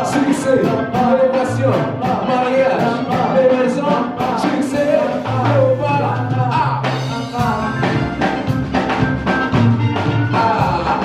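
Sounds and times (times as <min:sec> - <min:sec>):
person singing: 0:00.0 - 0:08.5, 0:10.0 - 0:11.0
band with bass and drums: 0:00.0 - 0:11.0.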